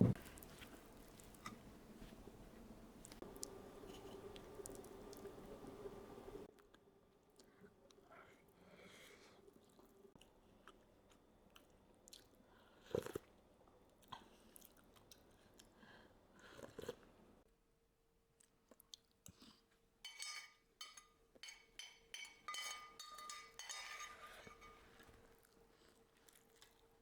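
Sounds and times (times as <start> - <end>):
chewing and crunching: 0.2 - 5.5, 9.4 - 17.1, 18.4 - 19.8, 24.7 - 27.0
utensil clinking against dish: 20.1 - 25.2.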